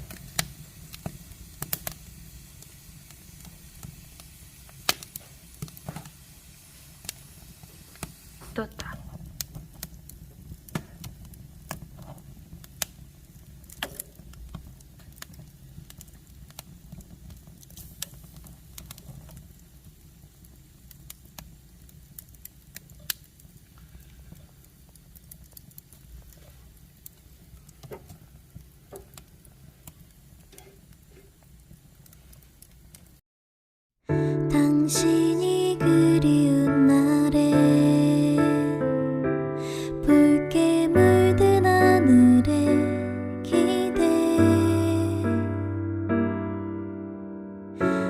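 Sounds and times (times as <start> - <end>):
logs crackling and popping: 0.0 - 33.2
low rumble of flames: 0.0 - 33.2.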